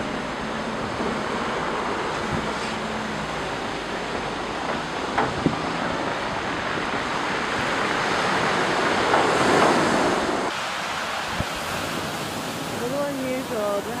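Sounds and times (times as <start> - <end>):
wind: 0.0 - 14.0
surf crashing against a seawall: 3.8 - 14.0.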